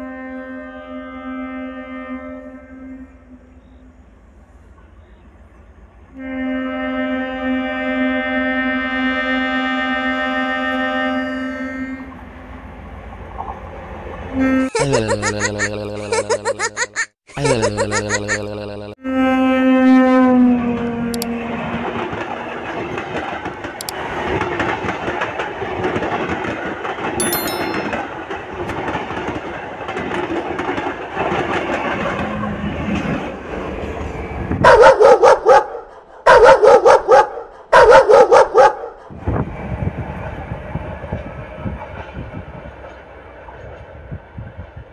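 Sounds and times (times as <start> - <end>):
train rumble and rail clatter: 3.3 - 6.2, 9.6 - 14.4, 20.6 - 27.2, 28.8 - 34.8, 39.1 - 44.9.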